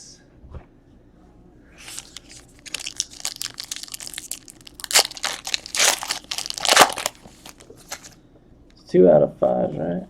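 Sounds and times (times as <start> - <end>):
wrapper crinkling and tearing: 1.8 - 8.2.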